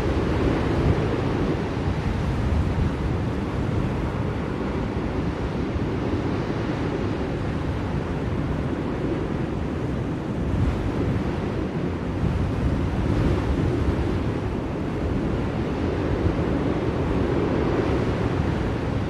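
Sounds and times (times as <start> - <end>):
blizzard wind rushing: 0.0 - 19.0.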